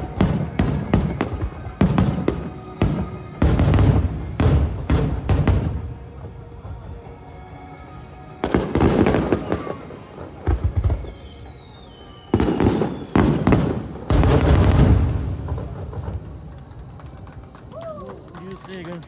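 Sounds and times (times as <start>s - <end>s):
fireworks booming and crackling: 0.0s - 7.1s, 8.4s - 19.0s
falling whistling fireworks: 0.0s - 19.0s.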